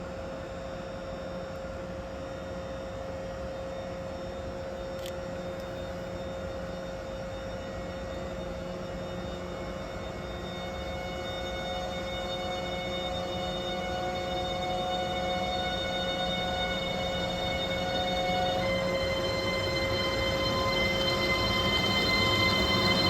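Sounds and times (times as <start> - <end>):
whining tone: 7.0 - 23.0
locomotive hum: 10.9 - 23.0.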